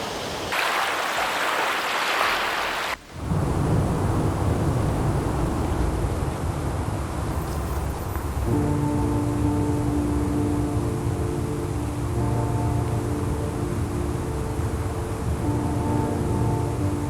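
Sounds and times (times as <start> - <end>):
river rapids rushing: 0.0 - 3.0
deep rumbling noise: 3.1 - 7.4.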